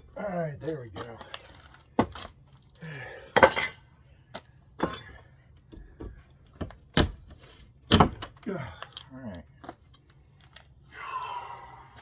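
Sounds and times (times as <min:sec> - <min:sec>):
debris knocks and clinks: 0:01.0 - 0:03.8, 0:04.8 - 0:05.3.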